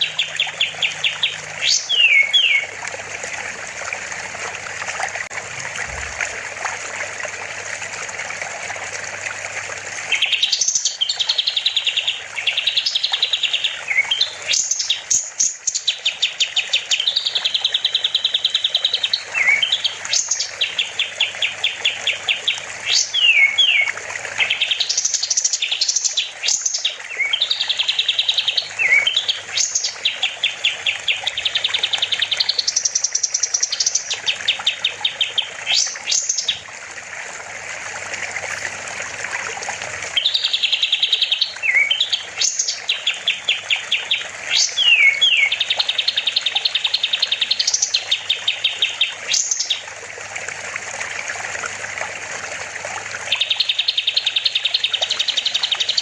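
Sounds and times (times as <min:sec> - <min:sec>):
bird singing trills and whistles: 0:00.0 - 0:02.7, 0:10.1 - 0:36.6, 0:40.2 - 0:49.8.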